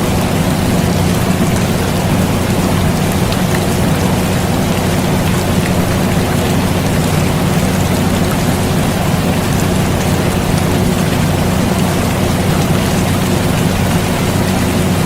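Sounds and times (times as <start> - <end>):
air conditioner humming: 0.0 - 15.0
steady rain hiss: 0.0 - 15.0.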